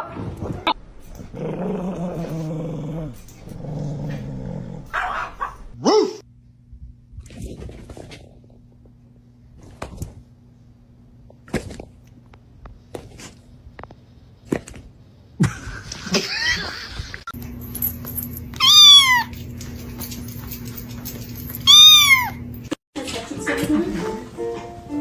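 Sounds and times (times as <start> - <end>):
cat meowing: 18.6 - 19.3, 21.7 - 22.4.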